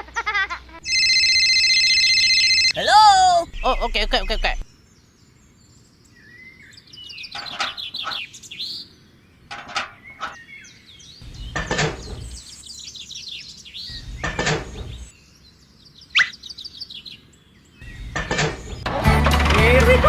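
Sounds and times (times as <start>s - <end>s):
high chirping and whistling calls: 15.9s - 17.2s.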